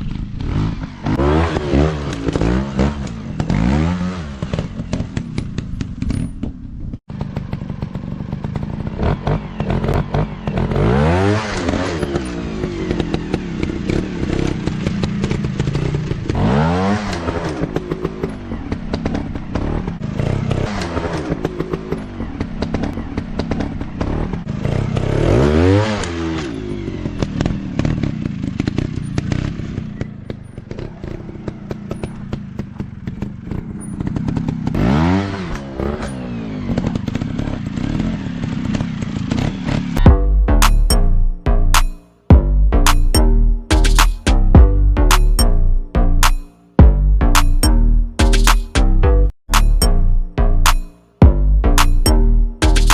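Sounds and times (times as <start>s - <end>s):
dirt bike engine revving: 0.0s - 5.3s, 7.1s - 52.9s.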